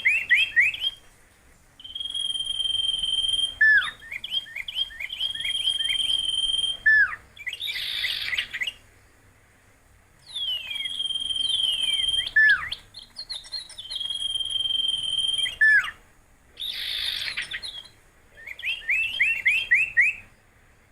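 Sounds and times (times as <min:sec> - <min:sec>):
bird song whistles: 0:00.0 - 0:01.1, 0:01.8 - 0:08.9, 0:10.2 - 0:16.0, 0:16.6 - 0:20.9
harsh raspy bird calls: 0:01.8 - 0:08.9, 0:10.3 - 0:16.0, 0:16.6 - 0:20.4.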